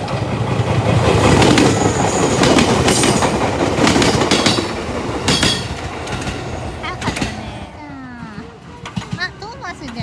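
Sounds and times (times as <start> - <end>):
wheels clacking over rail joints: 0.0 - 7.5, 8.2 - 10.0
electric train passing: 0.0 - 10.0.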